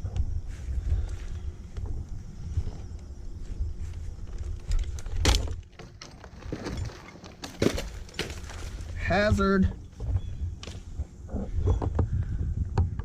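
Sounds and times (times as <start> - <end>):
wind rumble on microphone: 0.0 - 5.8, 8.8 - 13.0.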